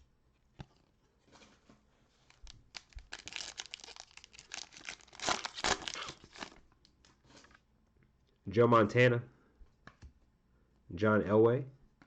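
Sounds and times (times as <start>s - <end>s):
plastic wrapper crinkling and tearing: 2.2s - 7.5s.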